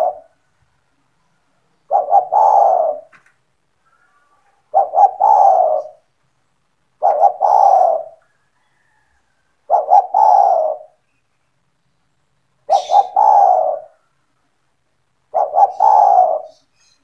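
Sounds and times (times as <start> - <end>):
dove cooing: 0.0 - 0.4, 1.8 - 3.1, 3.9 - 6.1, 7.0 - 11.0, 12.6 - 14.0, 15.3 - 17.0.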